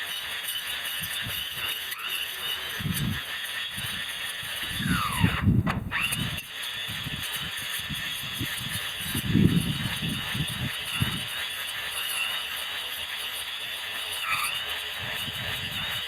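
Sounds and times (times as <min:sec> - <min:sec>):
electric grass trimmer cutting: 0:00.0 - 0:16.0
squeal gliding down in pitch: 0:04.8 - 0:06.3.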